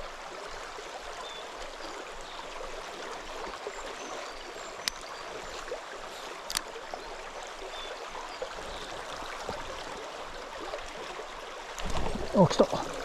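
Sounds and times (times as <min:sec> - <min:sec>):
stream flowing: 0:00.0 - 0:13.0.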